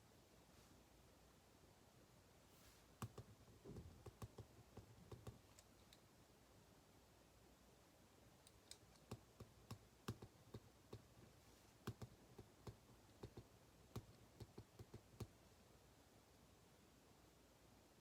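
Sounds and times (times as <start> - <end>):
faint irregular clicks: 3.0 - 6.1, 8.4 - 15.4.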